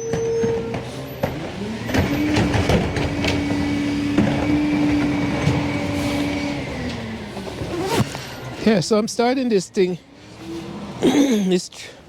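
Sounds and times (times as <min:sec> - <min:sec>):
clanks and knocks: 0:00.0 - 0:05.8
garbage truck whine: 0:00.0 - 0:12.0.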